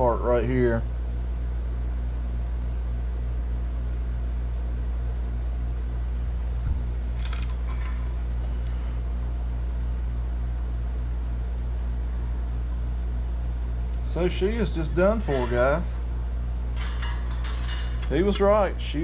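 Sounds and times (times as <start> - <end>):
light metallic clinks: 16.7 - 18.6.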